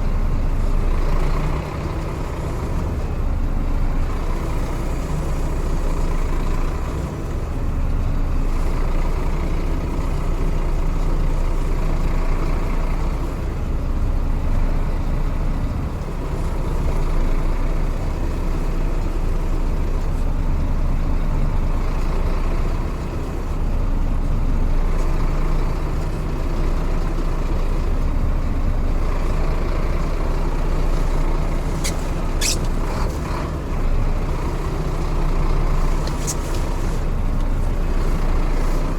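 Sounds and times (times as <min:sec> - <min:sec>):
diesel truck engine running: 0:00.0 - 0:38.9
short sharp hisses: 0:31.0 - 0:33.4.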